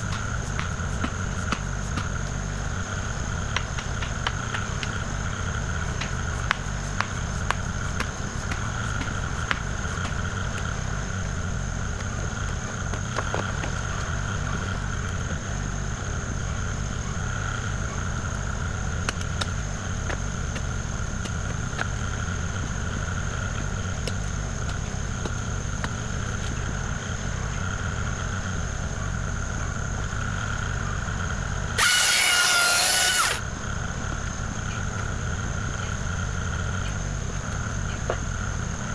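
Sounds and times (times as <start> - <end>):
high whine: 30.6 - 33.9
loud burst with high squeal: 31.8 - 33.5.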